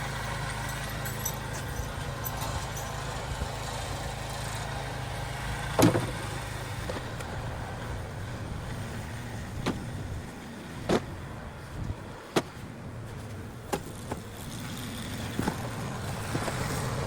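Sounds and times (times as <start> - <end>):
snow blower engine running: 0.0 - 17.0
sharp knocks: 5.8 - 6.2.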